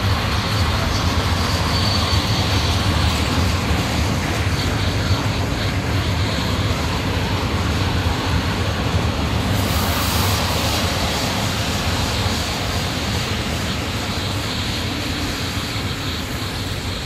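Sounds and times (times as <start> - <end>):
train wheels clattering on rails: 0.0 - 17.0
bright hiss: 9.4 - 17.0.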